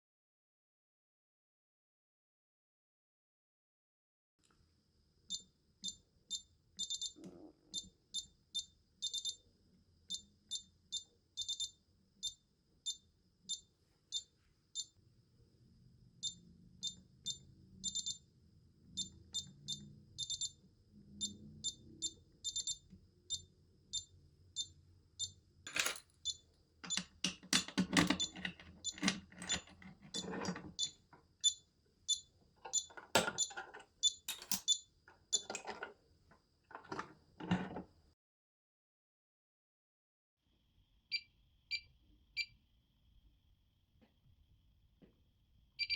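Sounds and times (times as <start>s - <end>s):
electronic alarm beeping: 5.3s - 9.4s, 10.1s - 14.9s, 16.2s - 18.3s, 18.9s - 27.1s, 28.0s - 35.6s
device handling clicks and knocks: 26.8s - 30.9s, 32.7s - 34.8s.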